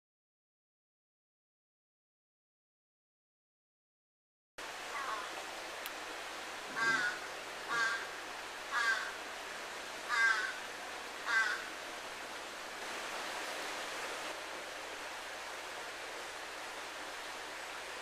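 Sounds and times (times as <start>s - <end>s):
river water rushing: 4.6s - 18.0s
crow cawing: 4.9s - 5.3s, 6.7s - 9.2s, 10.1s - 11.7s.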